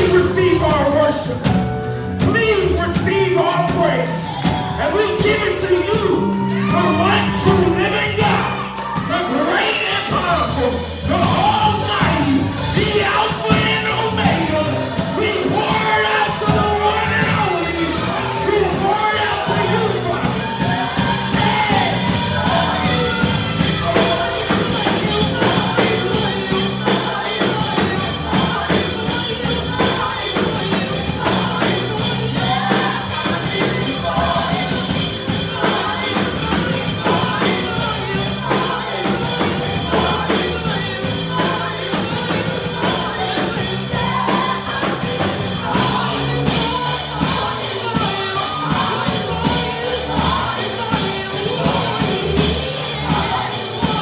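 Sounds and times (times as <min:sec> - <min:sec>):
people singing: 0:00.0 - 0:54.0
worship band music with drums: 0:00.0 - 0:54.0.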